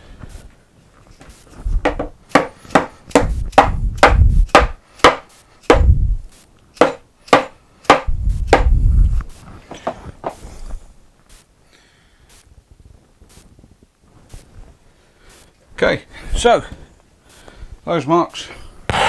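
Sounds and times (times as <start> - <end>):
heavier dull thumps: 1.7 - 10.4
sharp knocks on wood: 1.8 - 6.0, 6.8 - 8.8.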